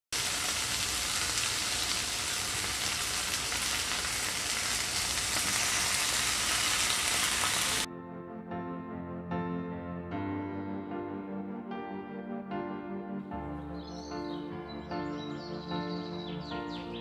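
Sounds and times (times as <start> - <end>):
food sizzling in a wok: 0.2 - 7.9
soft music: 7.8 - 17.0.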